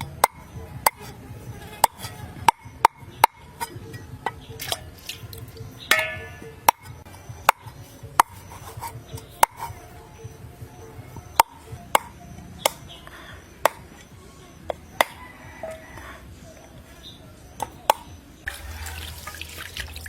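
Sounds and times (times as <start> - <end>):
knife chopping on cutting board: 6.7 - 9.8.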